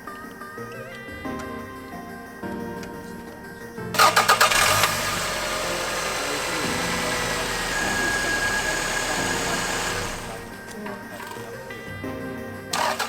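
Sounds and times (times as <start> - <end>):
car starter cranking: 3.9 - 11.8, 12.7 - 13.0
car engine running: 4.0 - 11.5.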